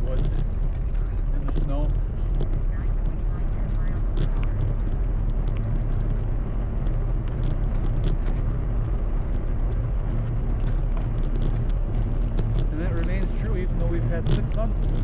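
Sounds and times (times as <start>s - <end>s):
fat tyres rolling on snow: 0.0s - 15.0s
small clicks and ticks: 0.0s - 15.0s
wind buffeting microphone: 0.0s - 15.0s.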